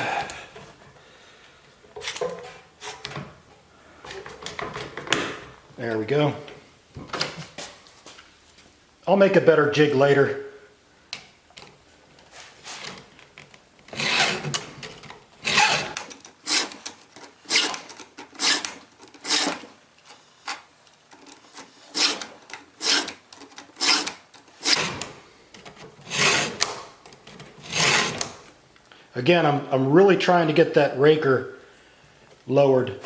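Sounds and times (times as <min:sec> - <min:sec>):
file rasping on chainsaw chain: 0:14.0 - 0:14.5, 0:15.5 - 0:19.7, 0:21.2 - 0:25.0, 0:26.2 - 0:26.6, 0:27.7 - 0:28.2.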